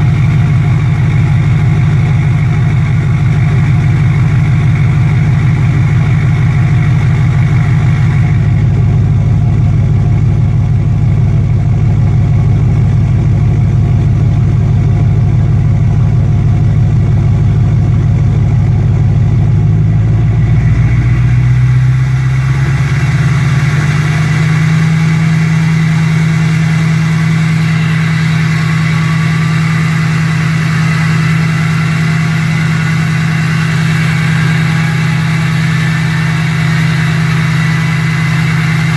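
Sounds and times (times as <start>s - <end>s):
diesel engine idling: 0.0s - 38.9s
faint rising whine: 19.8s - 38.9s.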